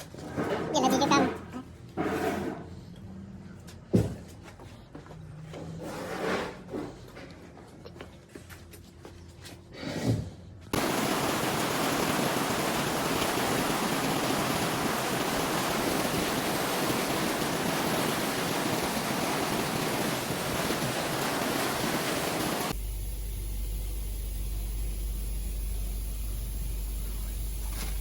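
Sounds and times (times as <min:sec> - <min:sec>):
steady loud hiss: 0:10.8 - 0:28.0.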